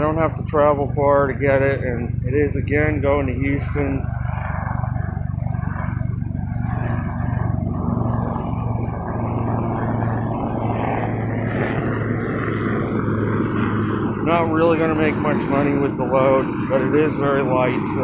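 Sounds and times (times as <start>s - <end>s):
vehicle engine hum and road noise: 0.0s - 18.0s
faint regular ticking: 4.0s - 14.3s.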